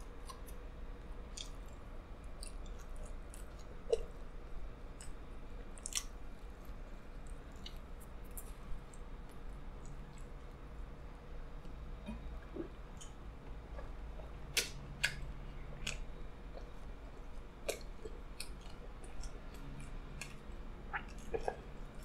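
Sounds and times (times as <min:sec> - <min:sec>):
wet chewing: 0:01.3 - 0:04.3, 0:11.6 - 0:22.0.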